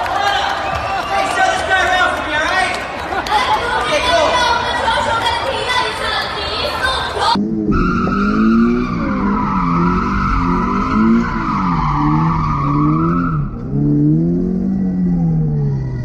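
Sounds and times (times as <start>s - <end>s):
car engine revving: 7.4s - 16.0s.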